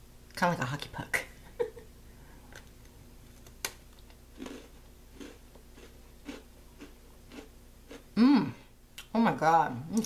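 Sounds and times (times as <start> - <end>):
crunchy chewing: 3.3 - 8.0.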